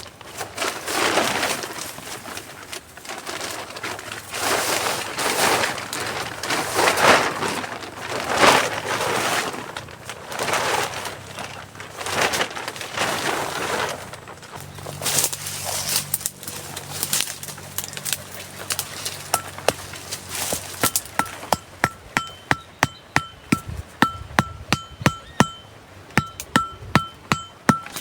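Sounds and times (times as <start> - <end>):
metal tool blows ringing: 20.8 - 28.0.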